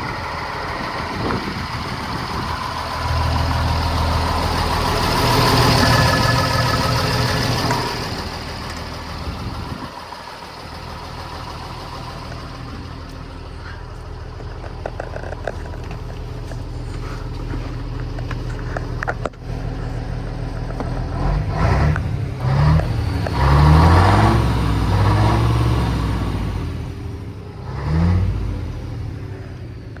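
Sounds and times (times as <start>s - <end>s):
engine revving blips: 0.0s - 8.8s, 21.1s - 27.0s, 27.6s - 29.7s
diesel truck engine running: 0.0s - 30.0s.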